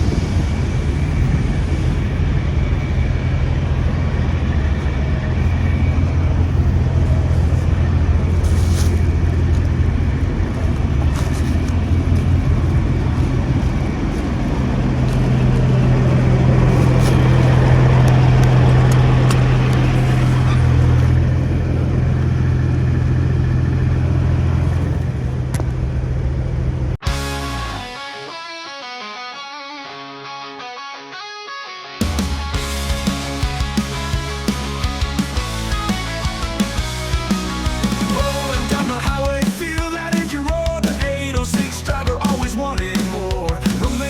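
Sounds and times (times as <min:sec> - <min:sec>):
truck diesel engine humming: 0:00.0 - 0:27.8, 0:32.0 - 0:44.0
guitar music: 0:27.0 - 0:44.0.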